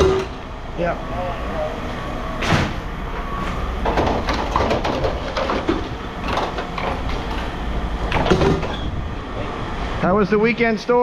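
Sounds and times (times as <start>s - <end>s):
steady low rumble: 5.8s - 10.4s.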